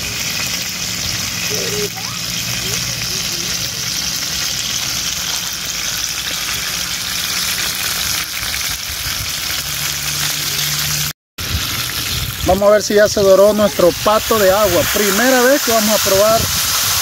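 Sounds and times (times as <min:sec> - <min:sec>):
duck sizzling in hot oil: 0:00.0 - 0:17.0.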